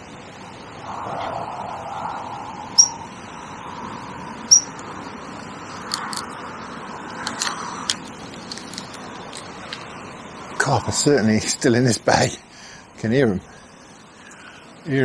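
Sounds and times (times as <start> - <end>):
steady outdoor hiss: 0.0 - 15.0
high-pitched bird chirps: 2.7 - 3.1, 4.5 - 4.8.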